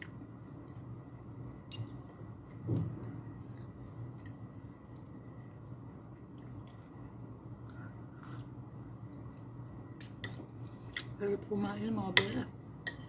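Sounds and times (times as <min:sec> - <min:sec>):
low steady hum: 0:00.0 - 0:13.0
person chewing food: 0:06.2 - 0:11.1.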